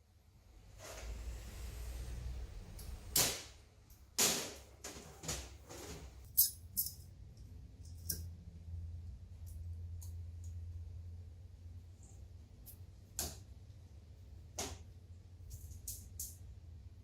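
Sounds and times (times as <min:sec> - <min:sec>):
metal tools clinking and knocking: 0:06.3 - 0:07.1.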